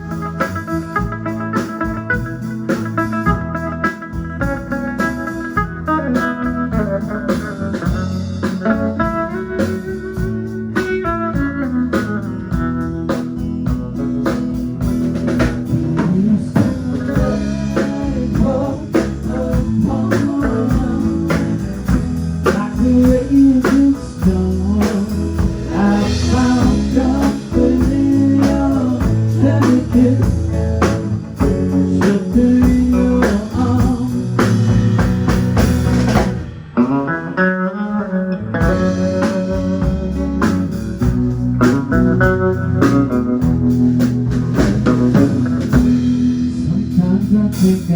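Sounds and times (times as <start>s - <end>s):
band playing blues: 0.0s - 47.9s.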